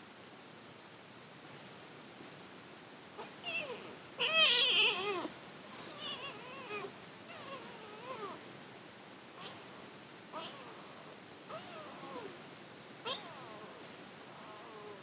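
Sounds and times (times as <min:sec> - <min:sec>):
kitten meowing: 0:13.1 - 0:13.6.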